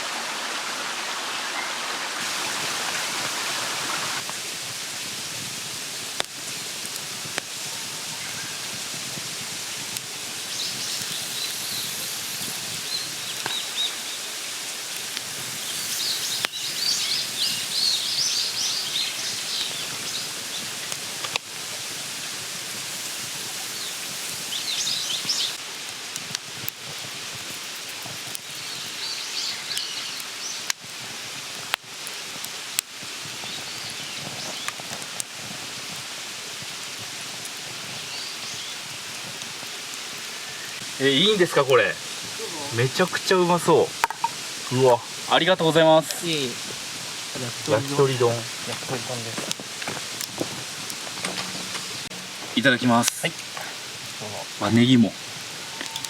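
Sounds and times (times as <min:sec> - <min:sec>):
steady hiss: 0:00.0 - 0:56.0
birds chirping: 0:10.4 - 0:14.7, 0:15.5 - 0:21.0, 0:22.9 - 0:25.6, 0:50.3 - 0:54.9.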